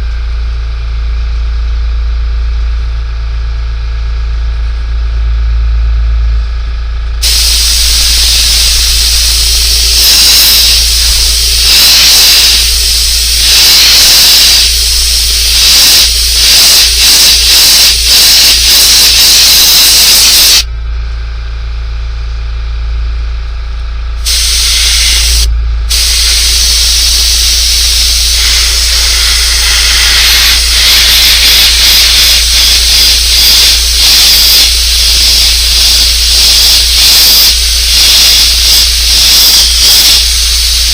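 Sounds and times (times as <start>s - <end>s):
low hum: 0.0s - 19.1s, 20.6s - 34.0s
spray paint hissing: 7.2s - 20.7s, 24.2s - 40.9s.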